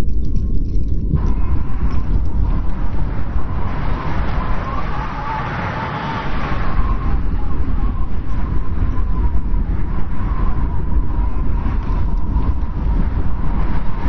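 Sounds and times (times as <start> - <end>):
strong wind blowing: 0.0 - 14.0.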